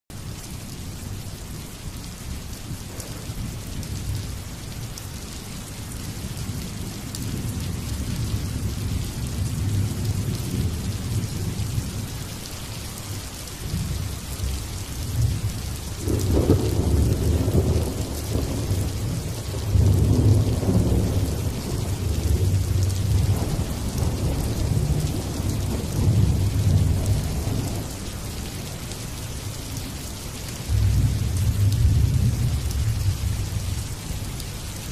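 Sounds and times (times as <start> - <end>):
steady rain falling: 0.1 - 34.9
thunder rumbling: 2.7 - 4.6, 6.4 - 12.2, 13.7 - 28.9, 30.6 - 34.3.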